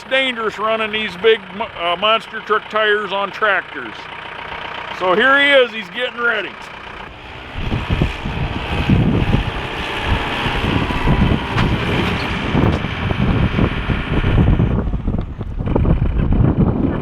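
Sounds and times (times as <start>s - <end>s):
tractor engine running: 0.0s - 17.0s
wind buffeting microphone: 7.1s - 17.0s.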